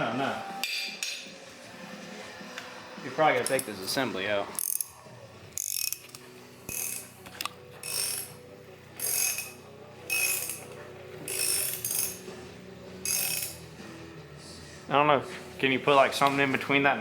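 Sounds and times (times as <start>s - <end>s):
socket ratchet clicking: 4.6s - 5.0s, 5.6s - 8.4s, 9.0s - 10.7s, 11.3s - 12.2s, 13.0s - 13.6s.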